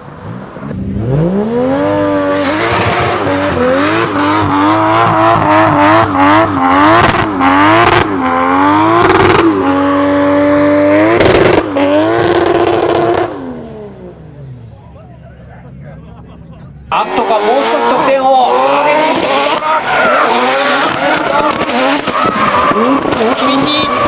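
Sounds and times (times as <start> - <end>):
car engine revving: 0.0 - 15.0, 16.1 - 24.0
tyre squeal: 19.2 - 24.0.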